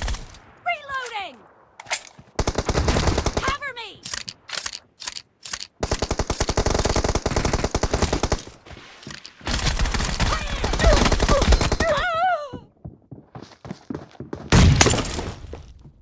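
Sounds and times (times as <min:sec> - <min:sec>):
video game automatic gunfire: 0:02.4 - 0:03.6, 0:05.8 - 0:08.4.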